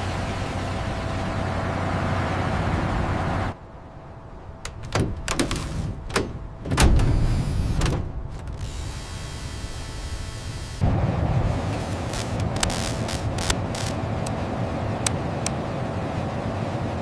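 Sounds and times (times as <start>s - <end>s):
mechanical hum: 0.0s - 17.0s
knocks and clunks: 4.6s - 8.7s.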